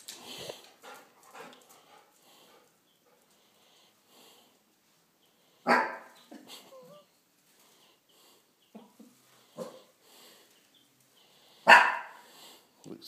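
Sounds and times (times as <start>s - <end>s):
dog barking: 5.6s - 6.2s, 9.6s - 9.9s, 11.6s - 12.2s.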